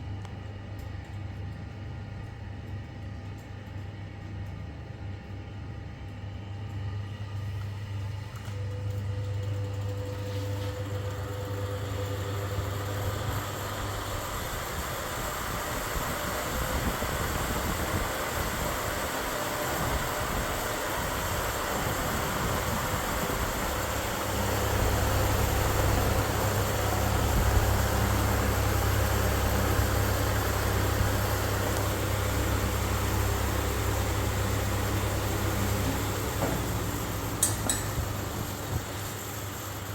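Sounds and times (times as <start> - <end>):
low motor hum: 6.7 - 39.9
fan air rushing: 11.3 - 39.9.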